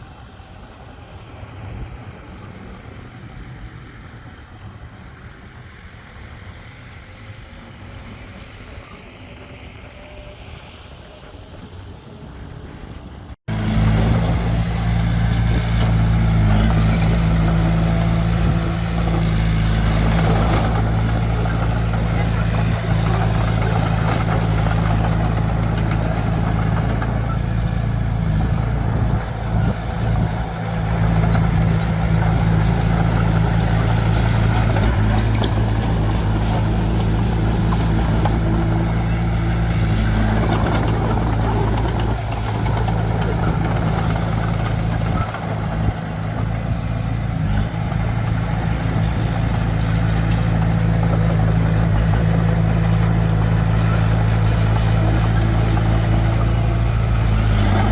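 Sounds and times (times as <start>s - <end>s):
heavy diesel engine running: 13.5s - 57.9s.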